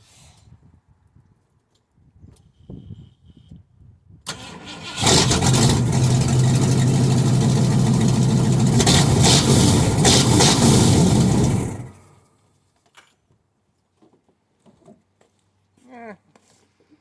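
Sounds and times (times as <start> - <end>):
van engine starting and running: 4.3 - 12.2.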